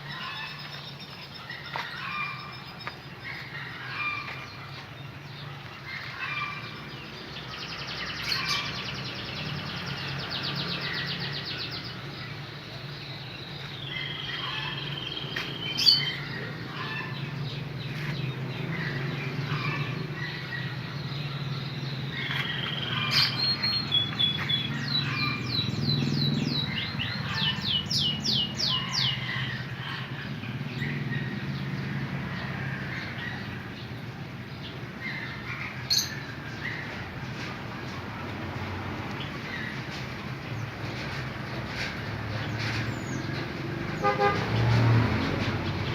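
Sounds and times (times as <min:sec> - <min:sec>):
canary singing: 0:12.8 - 0:29.7.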